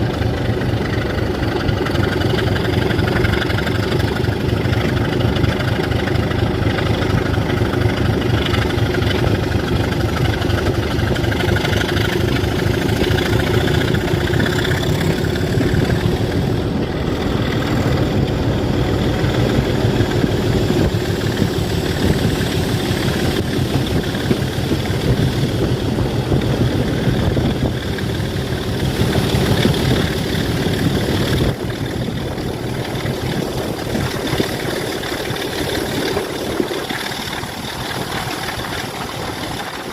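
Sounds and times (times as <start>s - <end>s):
diesel locomotive engine running: 0.0s - 39.9s.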